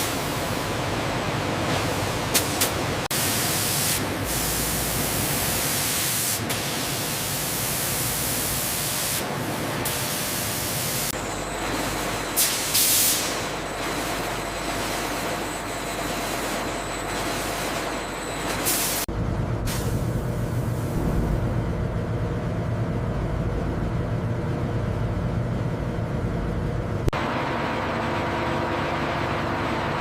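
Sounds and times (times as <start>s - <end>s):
hissing industrial machine noise: 0.0s - 24.4s.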